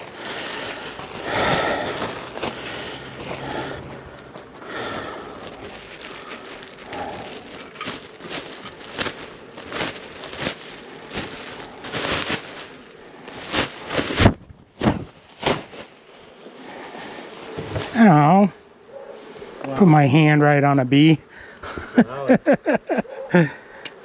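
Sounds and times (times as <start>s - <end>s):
bellows puffing air: 0.0s - 14.3s
rustling handling noise: 0.0s - 18.2s.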